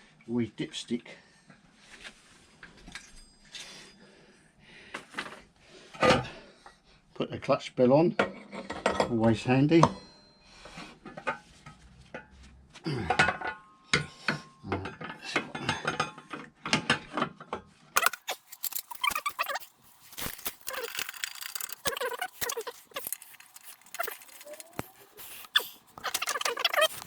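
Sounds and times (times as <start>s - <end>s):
metallic clinks of tools and parts: 18.0s - 27.0s.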